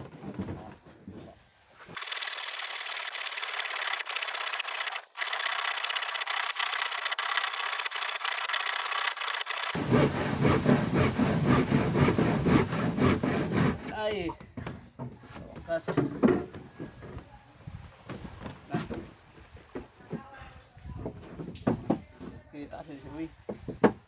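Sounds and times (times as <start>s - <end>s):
tool rasping wood: 2.0s - 14.0s.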